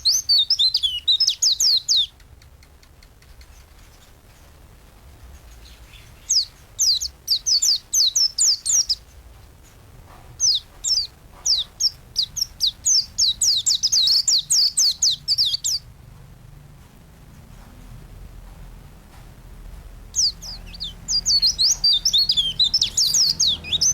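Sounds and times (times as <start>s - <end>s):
bird singing rapid high chirps: 0.0s - 2.2s, 5.6s - 9.2s, 10.4s - 15.9s, 20.2s - 23.9s.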